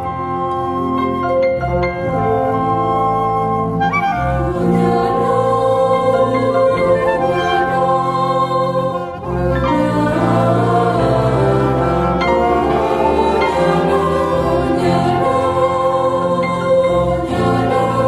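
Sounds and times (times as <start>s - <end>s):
choir singing: 3.7s - 18.0s.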